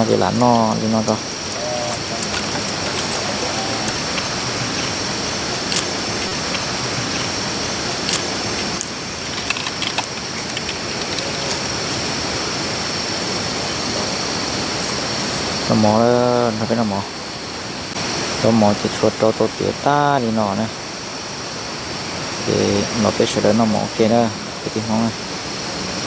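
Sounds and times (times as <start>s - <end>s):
faint clicks: 0.0s - 12.4s
high insect buzzing: 0.0s - 15.8s.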